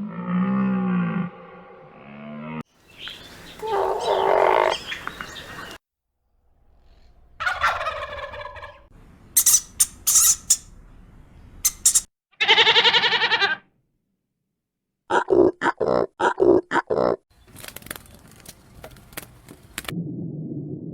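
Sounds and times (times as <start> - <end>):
bird calls: 2.8 - 5.8
bird warbling: 2.9 - 5.8, 11.7 - 12.1.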